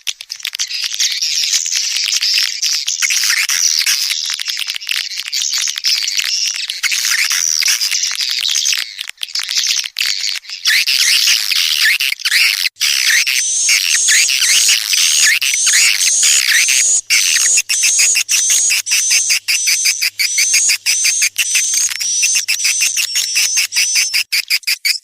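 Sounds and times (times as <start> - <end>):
swiftlets twittering chirps: 5.4 - 25.0.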